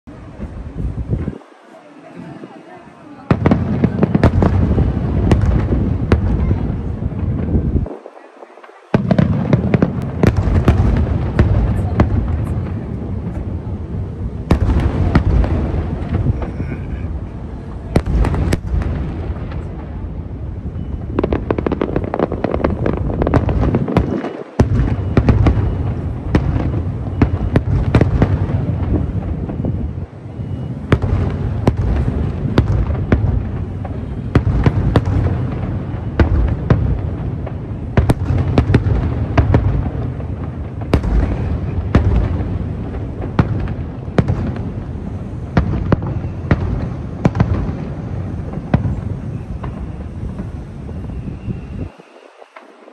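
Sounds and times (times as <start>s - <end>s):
firework cracks and crackles: 2.4s - 52.9s
firework shells booming: 3.3s - 51.8s.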